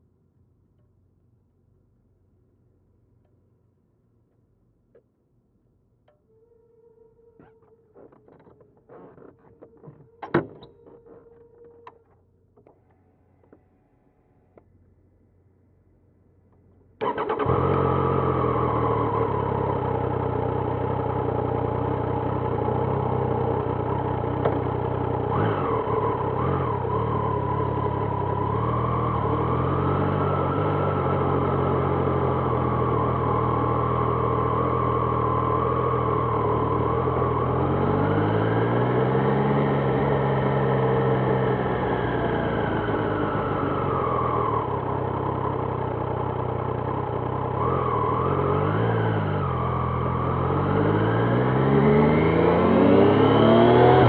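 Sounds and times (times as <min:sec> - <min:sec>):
motorcycle engine running: 0:17.0 - 0:51.5.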